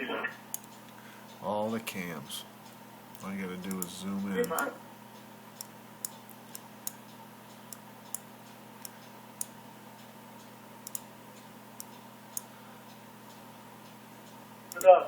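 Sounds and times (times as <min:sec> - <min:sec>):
faint steady hum: 0:00.0 - 0:15.0
computer mouse clicking: 0:00.5 - 0:00.9, 0:03.1 - 0:04.7, 0:05.6 - 0:09.6, 0:10.4 - 0:12.5, 0:13.3 - 0:14.9.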